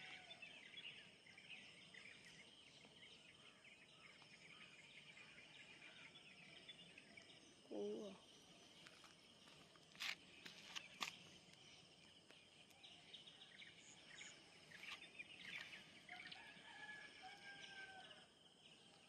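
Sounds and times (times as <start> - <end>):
bird chirps: 10.0 - 16.5
distant rooster crowing: 16.3 - 18.3.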